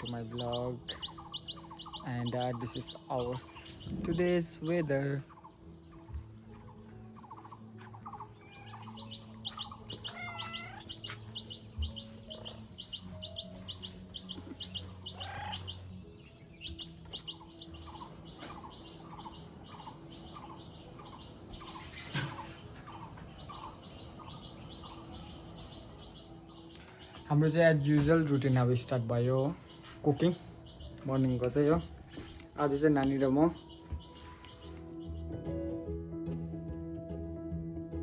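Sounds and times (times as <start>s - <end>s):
lower bird calls: 0.0s - 27.4s
small birds chirping: 0.0s - 35.9s.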